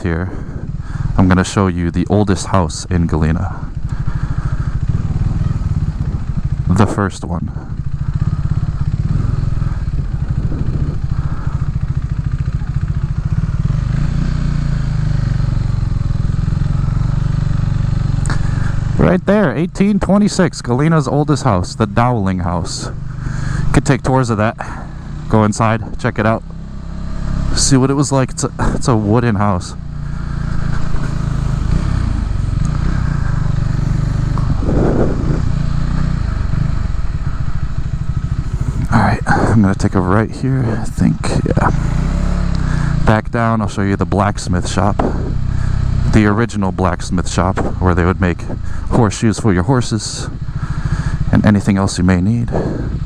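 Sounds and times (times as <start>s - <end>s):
motorcycle engine at low revs: 0.0s - 53.0s.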